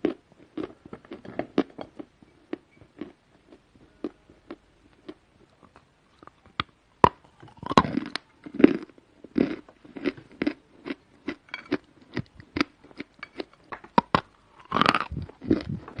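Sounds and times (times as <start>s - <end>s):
person chewing crunchy chalk: 7.3s - 16.0s.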